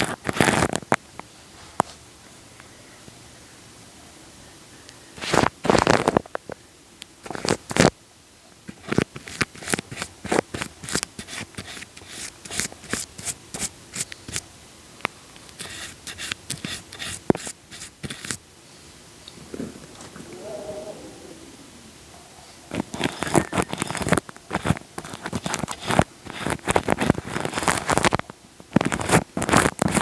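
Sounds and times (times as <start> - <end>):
wet sticky crackling and clicking: 22.7 - 30.0.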